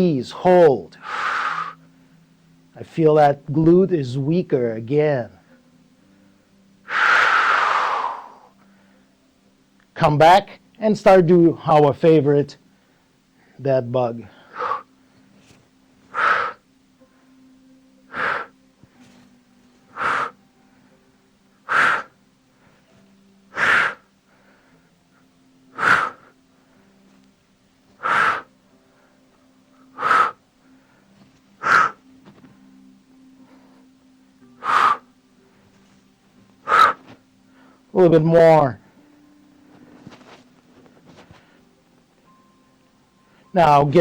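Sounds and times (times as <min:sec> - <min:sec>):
faint low hum: 0:00.0 - 0:44.0
person exhaling sharply: 0:28.0 - 0:28.5, 0:36.7 - 0:37.0.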